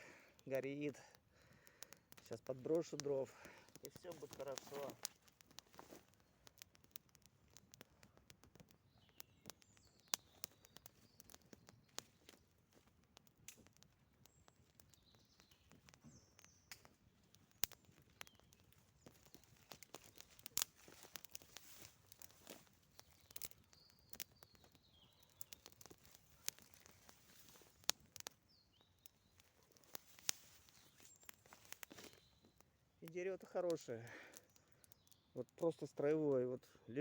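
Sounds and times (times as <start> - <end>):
campfire crackling and popping: 0.0 - 37.0.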